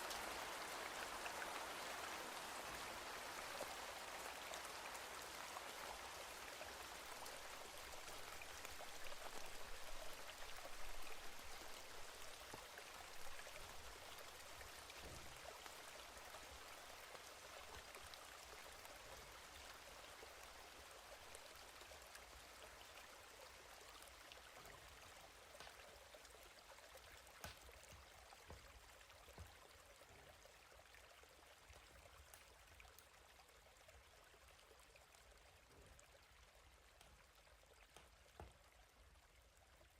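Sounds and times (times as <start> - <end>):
steady rain hiss: 0.0 - 39.2
raindrop ticks: 25.5 - 25.9, 27.3 - 29.6, 31.9 - 33.2, 36.8 - 38.7.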